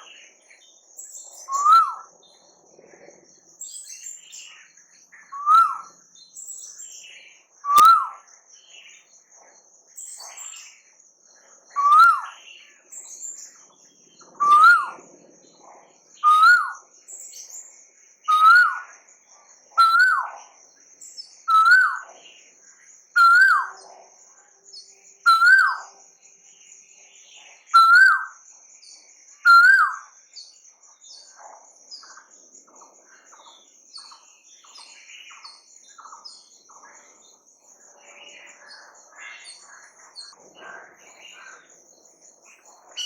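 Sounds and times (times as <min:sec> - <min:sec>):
faint bird chirps: 0:00.0 - 0:43.0
bird whistling call: 0:01.4 - 0:02.1, 0:05.3 - 0:05.9, 0:07.7 - 0:08.2, 0:11.8 - 0:12.4, 0:14.4 - 0:15.0, 0:16.2 - 0:16.8, 0:18.3 - 0:18.9, 0:19.8 - 0:20.3, 0:21.5 - 0:22.0, 0:23.2 - 0:23.7, 0:25.3 - 0:25.9, 0:27.8 - 0:28.4, 0:29.5 - 0:30.1.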